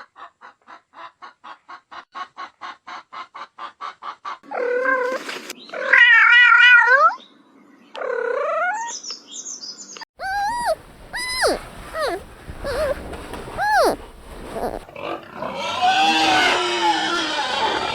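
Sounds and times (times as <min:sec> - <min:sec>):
cat meowing: 0:10.2 - 0:14.9.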